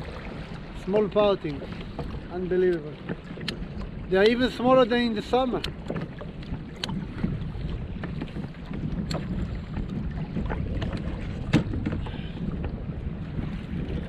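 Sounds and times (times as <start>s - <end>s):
water washing against kayak hull: 0.0s - 14.0s
wind rumbling on microphone: 0.0s - 14.0s.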